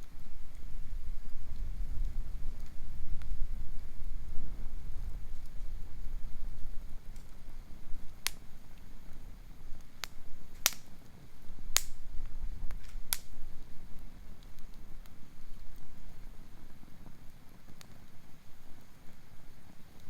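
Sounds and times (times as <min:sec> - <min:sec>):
campfire crackling: 0:00.0 - 0:20.0
sharp fire pops: 0:00.0 - 0:20.0.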